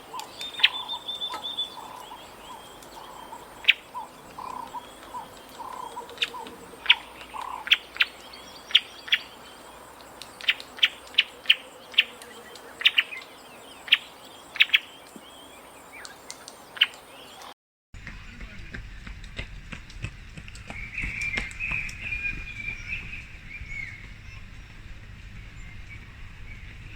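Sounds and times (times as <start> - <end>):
low warbling bird call: 0.0 - 17.5
bird chirps: 0.0 - 17.6, 20.1 - 26.9.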